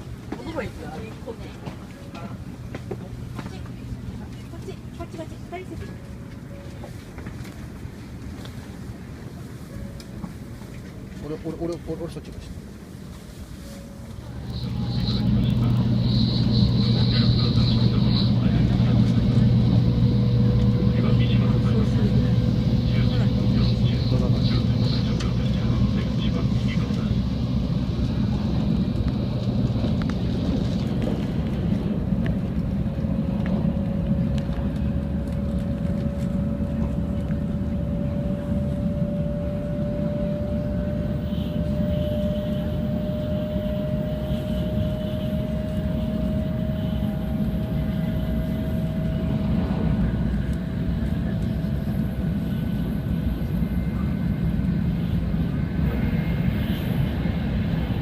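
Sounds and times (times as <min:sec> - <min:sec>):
train cabin low rumble: 0:00.0 - 0:58.0
faint rising whine: 0:13.5 - 0:58.0.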